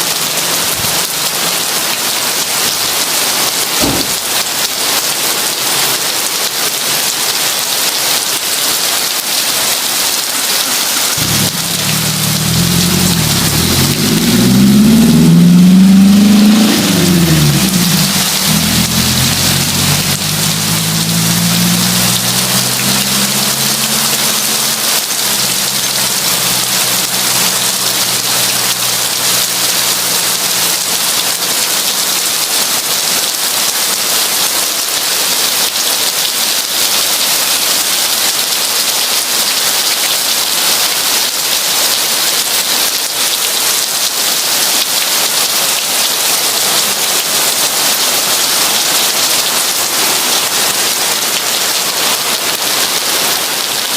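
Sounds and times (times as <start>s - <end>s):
heavy rain falling: 0.0s - 53.9s
low rumble: 11.2s - 29.7s.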